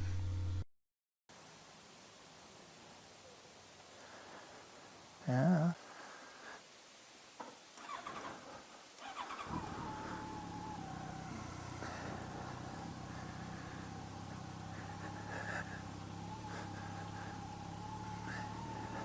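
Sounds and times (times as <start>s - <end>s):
motorcycle electric starter cranking: 7.8s - 19.0s
motorcycle engine idling: 9.0s - 19.0s.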